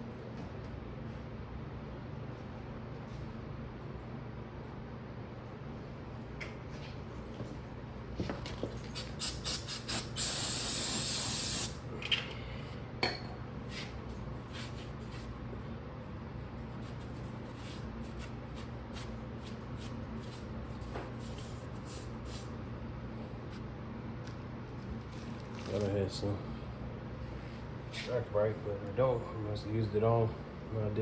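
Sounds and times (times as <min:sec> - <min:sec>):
steady low hum: 0:00.0 - 0:31.0
aerosol can spraying: 0:09.0 - 0:11.8.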